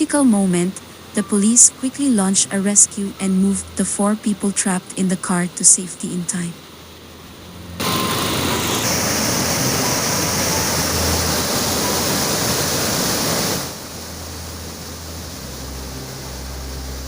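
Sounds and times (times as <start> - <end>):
low hum: 0.0 - 17.0
floodwater rushing: 6.6 - 17.0.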